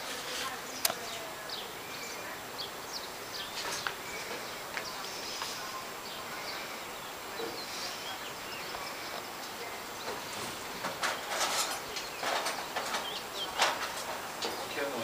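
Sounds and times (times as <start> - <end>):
small birds chirping: 0.0 - 15.0
steady outdoor hiss: 0.0 - 15.0
faint clicks: 0.8 - 1.2.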